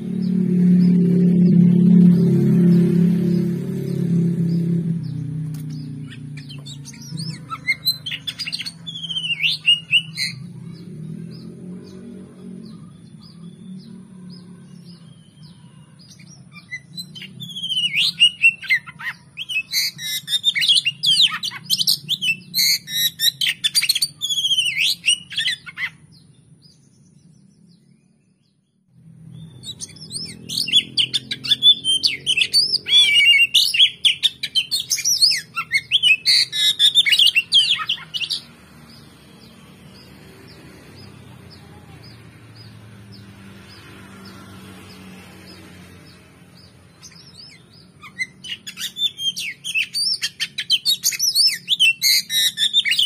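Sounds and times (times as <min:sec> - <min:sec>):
bird whistling and chirping: 0:05.8 - 0:11.4, 0:14.9 - 0:26.0, 0:29.4 - 0:40.1, 0:46.0 - 0:53.0.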